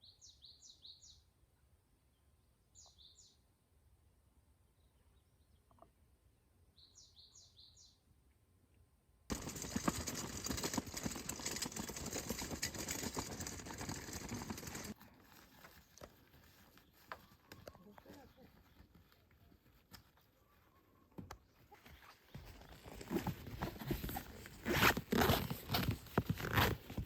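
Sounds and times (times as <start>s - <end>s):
small bird chirping: 0.0s - 1.3s, 2.1s - 3.4s, 6.8s - 8.0s
loud rustling and crackling: 9.3s - 17.0s.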